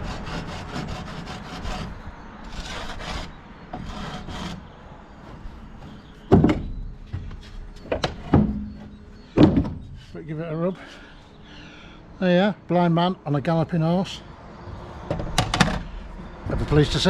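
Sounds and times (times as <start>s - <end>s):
rasping strokes on cement board: 0.0s - 4.7s
sharp knocks: 6.3s - 9.8s.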